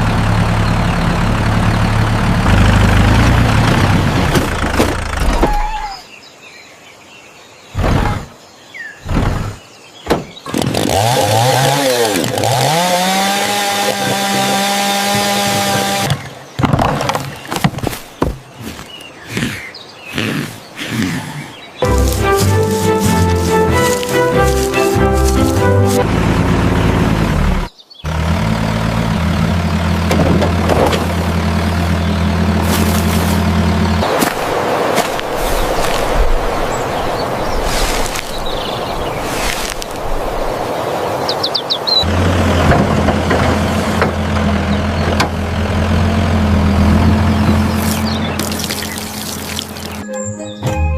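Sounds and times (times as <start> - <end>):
small engine revving: 10.5 - 16.2, 23.0 - 34.2, 42.0 - 50.0.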